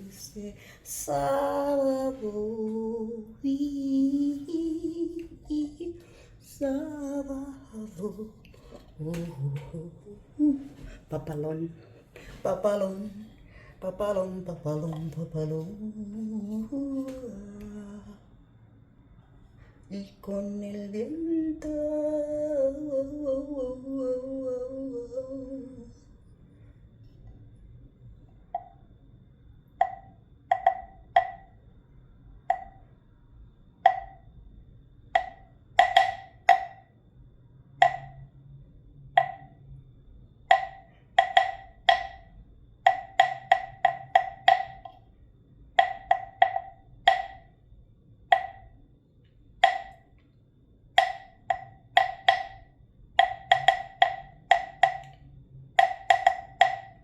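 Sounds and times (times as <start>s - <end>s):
person humming: 0.0s - 11.8s, 12.4s - 18.2s, 20.0s - 26.1s
wooden wind chime clacking: 29.8s - 31.5s, 33.9s - 34.2s, 35.2s - 36.8s, 37.8s - 38.2s, 39.2s - 39.5s, 40.5s - 42.3s, 42.9s - 45.0s, 45.8s - 47.5s, 48.3s - 48.7s, 49.6s - 50.0s, 51.0s - 55.2s, 55.8s - 57.0s.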